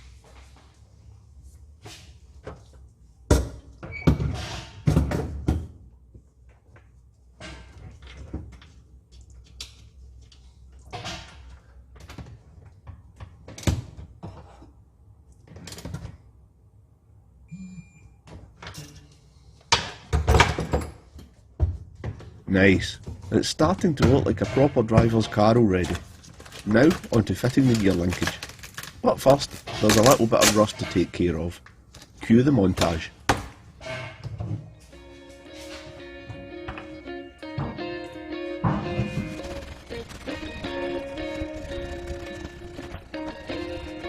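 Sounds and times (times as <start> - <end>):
parts and tools clattering: 23.1 - 31.4.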